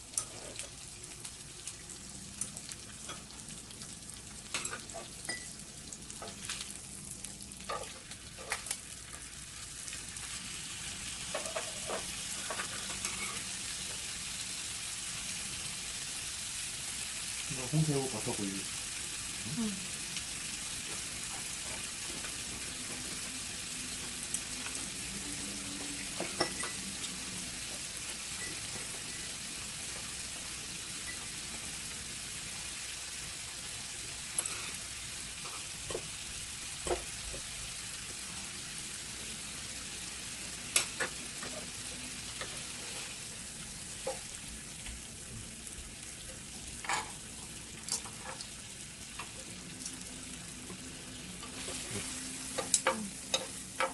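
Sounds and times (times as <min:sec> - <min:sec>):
shrimp sizzling in a pan: 0:00.0 - 0:53.9.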